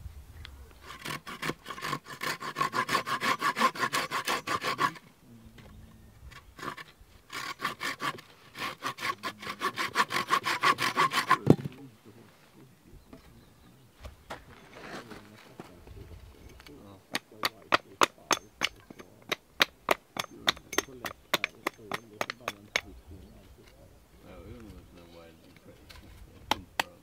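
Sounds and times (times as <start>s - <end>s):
hand saw cutting wood: 0.8s - 5.1s, 6.6s - 11.7s, 17.2s - 22.9s
thud: 11.4s - 11.8s.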